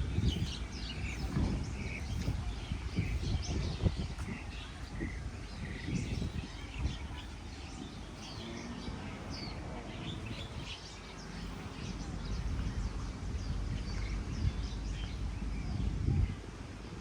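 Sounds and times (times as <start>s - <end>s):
low thumps and rumble: 0.0s - 8.3s
small birds chirping: 0.0s - 17.0s.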